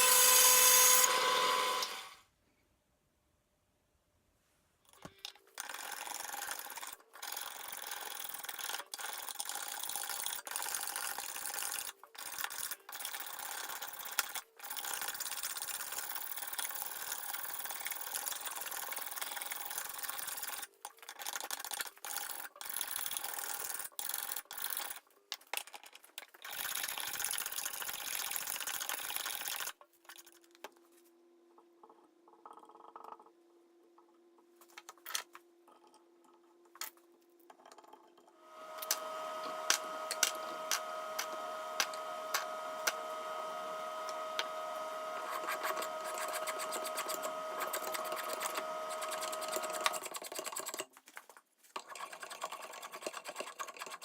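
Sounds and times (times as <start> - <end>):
sanding rub: 45.2 - 49.8.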